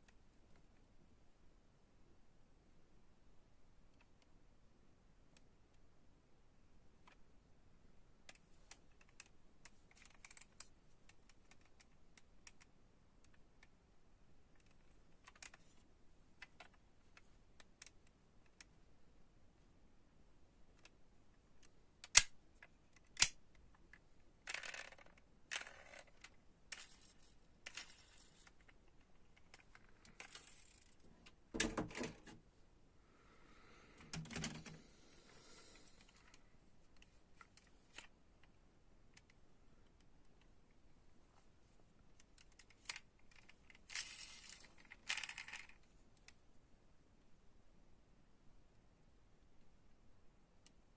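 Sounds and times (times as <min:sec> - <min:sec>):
toy cars tapping and clicking: 0:24.5 - 0:28.8, 0:29.4 - 0:31.0, 0:42.2 - 0:45.8.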